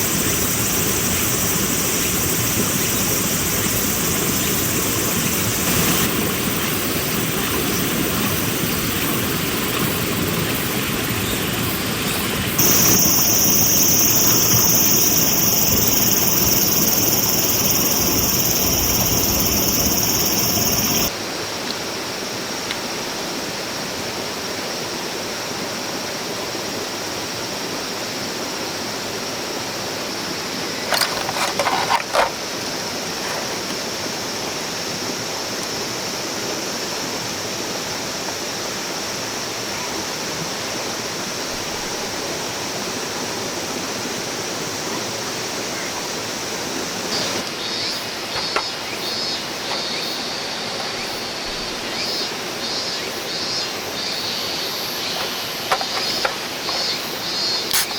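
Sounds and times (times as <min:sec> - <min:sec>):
mountain stream rushing: 0:00.0 - 0:23.8
high pulsing: 0:12.6 - 0:21.1.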